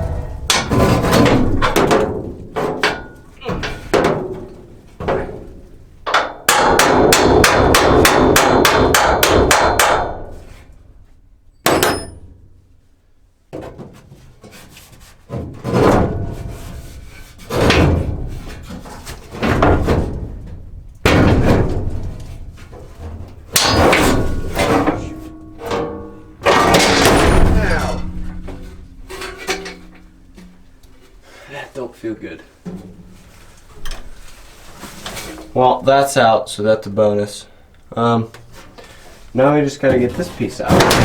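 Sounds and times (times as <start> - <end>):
hammer striking metal: 6.1 - 10.4, 11.6 - 12.3, 23.5 - 28.2.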